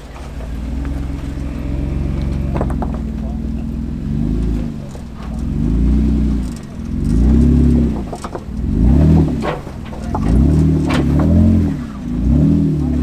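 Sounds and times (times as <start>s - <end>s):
off-road engine revving hard: 0.0s - 13.0s
sharp knocks: 2.3s - 3.4s, 6.4s - 11.7s.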